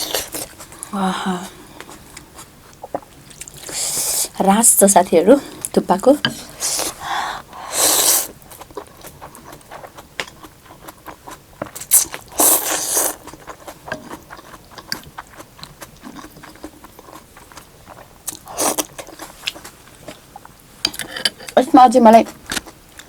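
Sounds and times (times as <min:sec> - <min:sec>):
chewing: 0:01.8 - 0:04.4, 0:08.2 - 0:21.6
slurping soup: 0:01.8 - 0:04.4, 0:05.4 - 0:09.9, 0:11.7 - 0:14.6.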